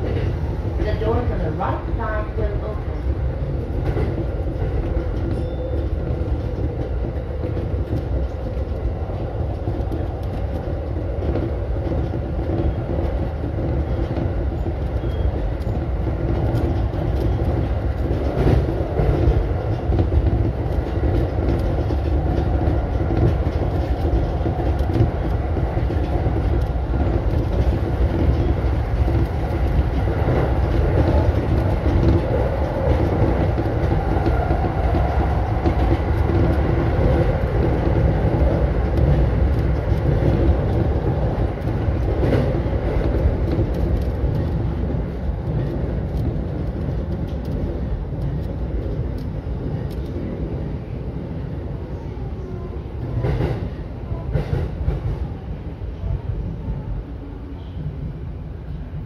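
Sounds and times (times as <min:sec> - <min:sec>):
wheels rumbling on rail: 0:00.0 - 0:59.0.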